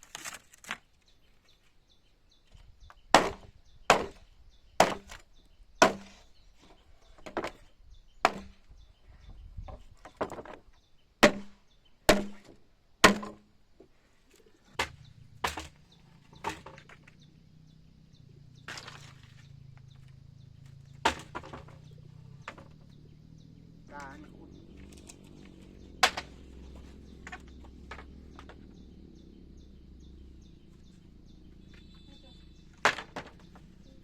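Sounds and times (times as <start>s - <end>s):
blade chopping wood: 3.1s - 4.2s, 4.8s - 5.2s, 5.8s - 6.3s, 8.2s - 8.6s, 11.2s - 13.5s, 14.7s - 17.1s, 18.7s - 19.9s, 20.7s - 23.0s, 24.8s - 28.8s, 32.7s - 33.6s.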